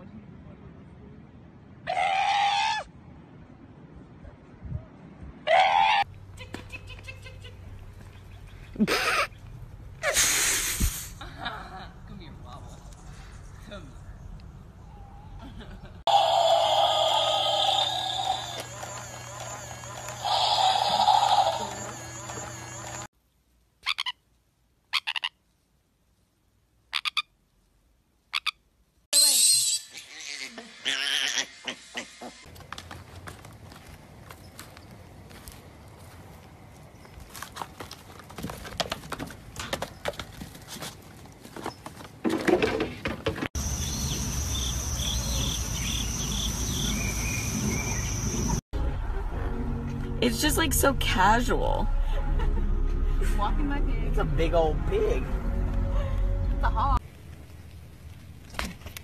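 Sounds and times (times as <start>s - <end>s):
insects trilling: 16.1s - 23.1s, 43.6s - 48.6s
parrot croaky chirps: 19.6s - 22.5s, 23.8s - 24.2s, 24.9s - 25.4s, 26.9s - 27.3s, 28.3s - 28.6s.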